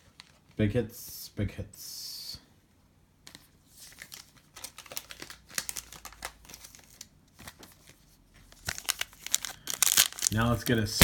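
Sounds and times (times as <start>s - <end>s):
foil wrapper tearing and crinkling: 3.9s - 7.9s, 8.5s - 11.0s.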